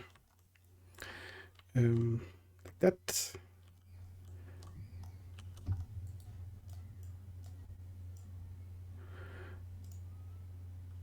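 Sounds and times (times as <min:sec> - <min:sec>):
steady low hum: 0:00.0 - 0:11.0
faint scattered clicks: 0:03.6 - 0:08.3, 0:09.8 - 0:10.1
soft breath-like sound: 0:08.9 - 0:09.7.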